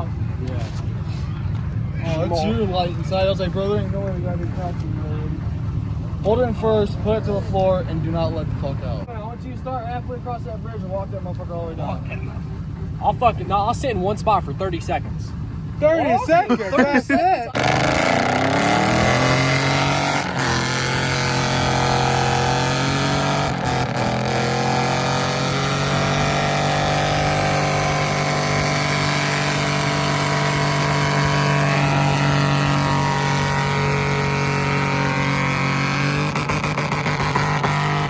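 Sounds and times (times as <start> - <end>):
truck engine revving high: 14.2 - 38.0.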